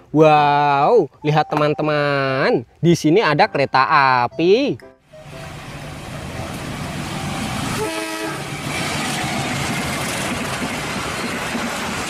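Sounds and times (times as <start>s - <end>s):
diesel train passing at speed: 5.1s - 12.0s
train horn blast: 7.7s - 8.7s.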